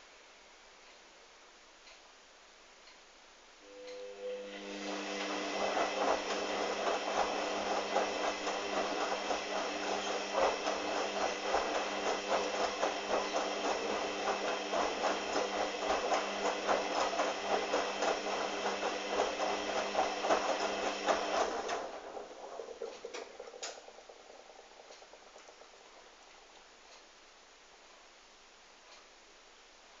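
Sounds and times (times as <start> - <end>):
washing machine motor humming: 3.7 - 26.4
rattle of knocks: 22.5 - 26.4.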